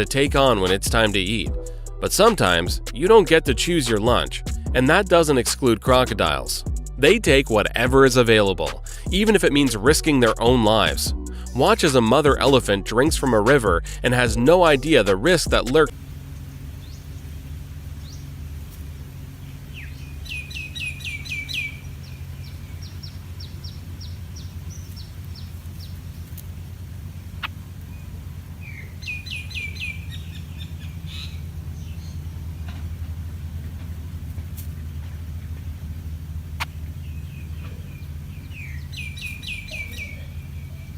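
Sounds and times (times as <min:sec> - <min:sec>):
low outdoor rumble: 0:00.0 - 0:40.9
bird chirping rapidly: 0:15.3 - 0:32.7, 0:33.6 - 0:40.9.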